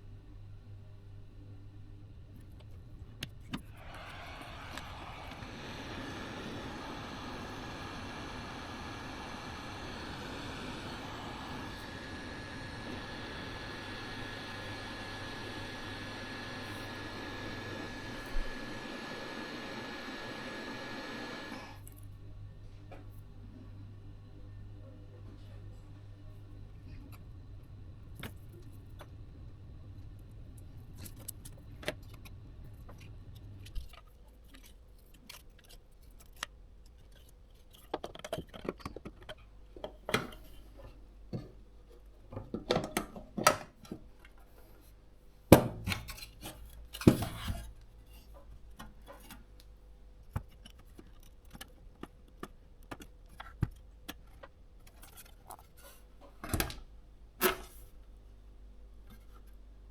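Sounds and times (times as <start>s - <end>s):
steady low hum: 0.0s - 35.1s.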